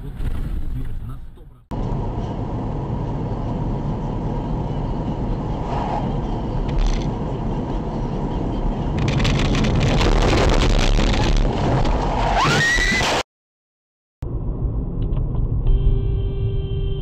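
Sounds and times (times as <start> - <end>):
car road noise: 0.0 - 13.2, 14.2 - 17.0
rising squeal: 4.6 - 6.6
crackling clattering noise: 6.6 - 7.1, 9.0 - 12.1.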